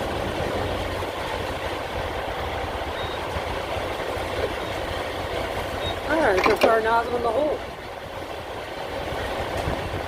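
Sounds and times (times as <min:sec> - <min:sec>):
diesel truck engine idling: 0:00.0 - 0:10.0
wind noise on microphone: 0:07.7 - 0:10.0.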